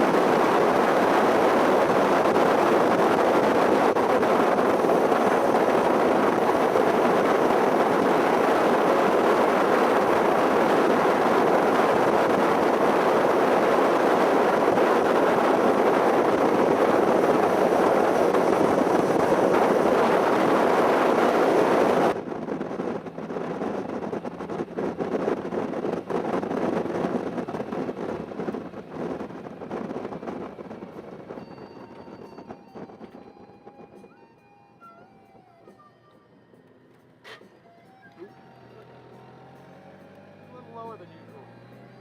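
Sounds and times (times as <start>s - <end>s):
wind and road noise: 0.0s - 42.0s.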